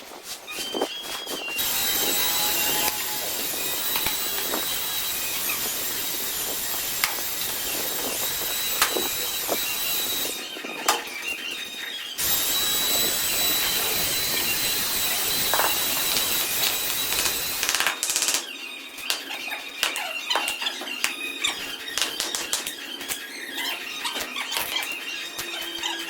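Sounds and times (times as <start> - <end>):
power tool whining and grinding: 1.5 - 18.0.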